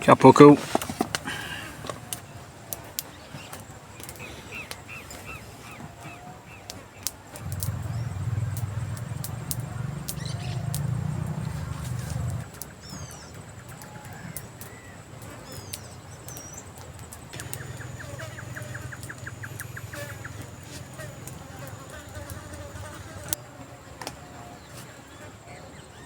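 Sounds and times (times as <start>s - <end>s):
birds chirping: 0.0s - 26.0s
insect whine: 1.2s - 26.0s
fast ticks: 6.7s - 14.8s, 15.6s - 23.4s
sharp clicks: 6.7s - 22.7s
low rumble: 7.4s - 12.5s.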